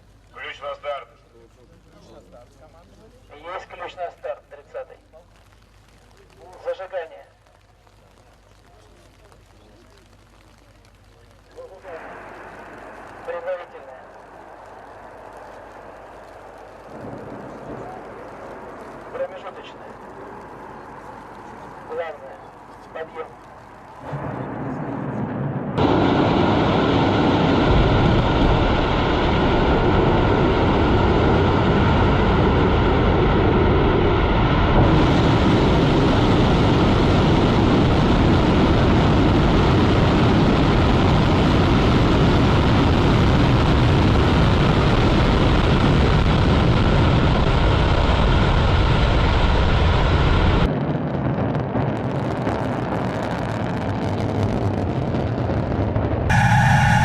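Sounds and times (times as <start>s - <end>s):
rocket engines rumbling: 0.0s - 57.0s.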